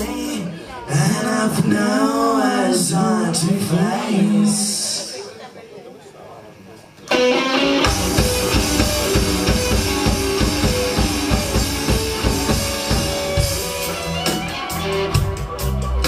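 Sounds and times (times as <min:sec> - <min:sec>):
bass: 0:00.0 - 0:03.9, 0:07.7 - 0:16.0
drum kit beat: 0:07.1 - 0:16.0.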